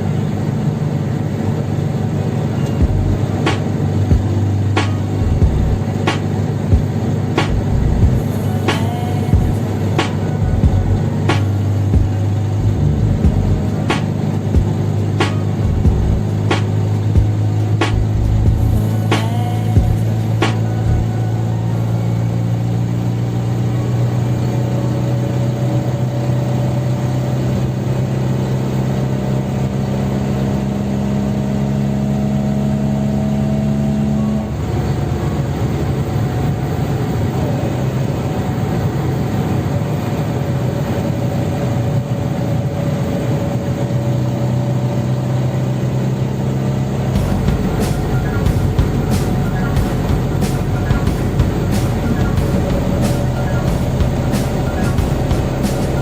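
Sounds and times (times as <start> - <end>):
two-cylinder car engine running: 0.0 - 56.0.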